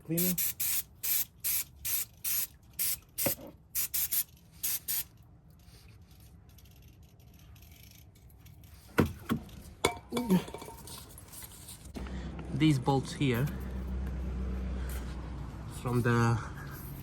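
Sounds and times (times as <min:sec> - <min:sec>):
aerosol spray hissing bursts: 0:00.2 - 0:05.1.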